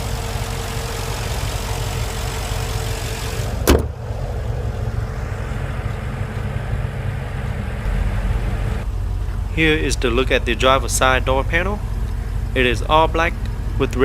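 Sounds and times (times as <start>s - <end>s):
car engine idling: 0.0s - 14.0s
sharp thump: 3.6s - 4.0s.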